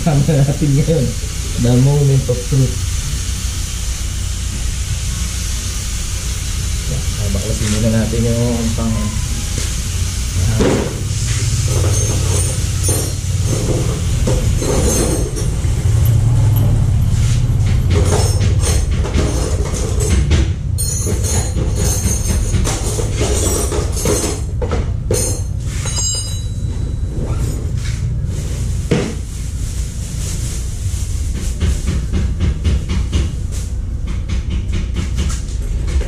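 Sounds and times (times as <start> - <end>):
metal parts clanking and scraping: 11.4 - 16.8, 17.8 - 20.2, 20.8 - 27.7
short metallic squeals: 11.6 - 13.6.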